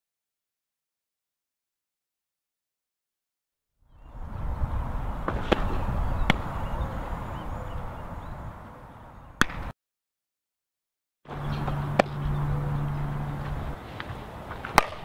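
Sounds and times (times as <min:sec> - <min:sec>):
outdoor ambience: 0:03.9 - 0:09.7, 0:11.3 - 0:15.0
ball smacking into mitt: 0:09.4 - 0:09.7, 0:14.7 - 0:15.0.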